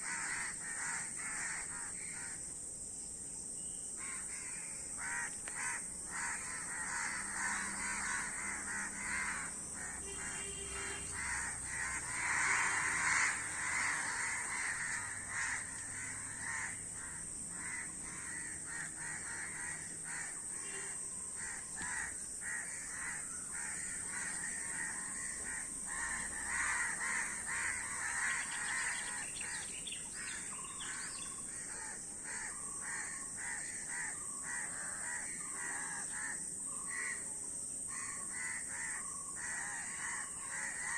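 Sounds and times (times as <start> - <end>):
crows cawing: 0.0 - 2.5, 4.0 - 37.3, 37.9 - 40.9.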